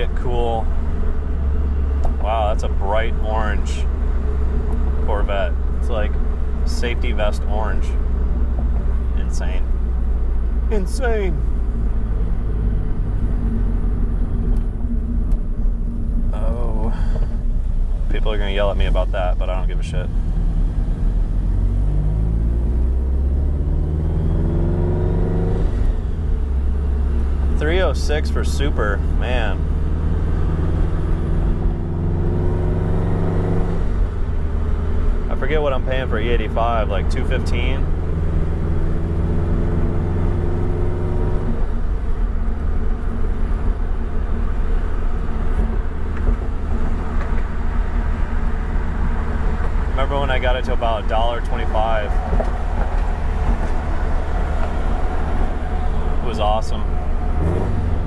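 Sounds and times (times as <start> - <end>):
car engine accelerating: 0.0 - 58.0
road noise: 0.0 - 58.0.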